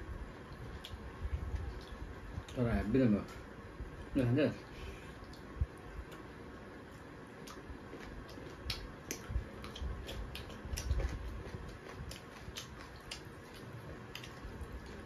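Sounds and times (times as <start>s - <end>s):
chewing and lip smacking: 5.2s - 6.3s, 6.9s - 15.0s.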